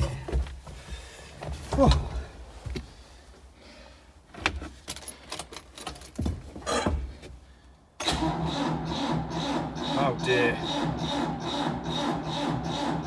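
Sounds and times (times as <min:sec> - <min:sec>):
starter motor cranking diesel engine: 0:08.0 - 0:13.0.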